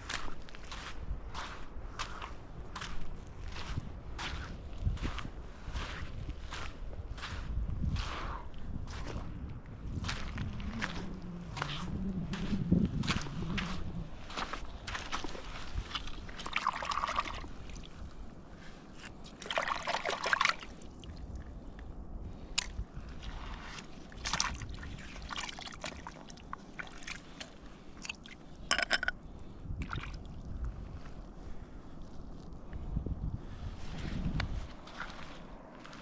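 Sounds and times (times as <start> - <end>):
low rumble: 8.5 - 15.9
water sloshing and splashing: 13.0 - 32.5.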